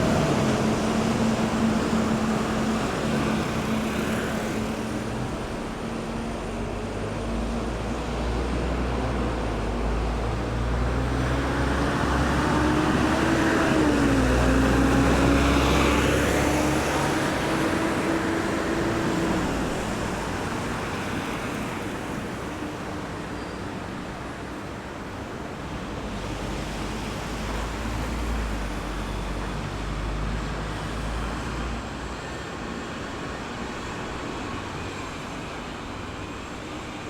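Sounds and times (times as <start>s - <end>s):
traffic hum: 0.0s - 23.2s
vehicle passing by: 10.7s - 20.3s.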